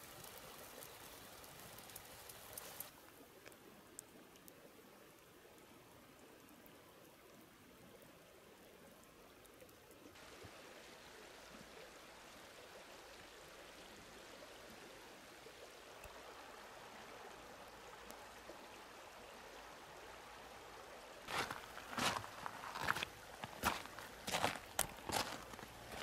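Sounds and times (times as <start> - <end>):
crunching footsteps: 21.3 - 26.0.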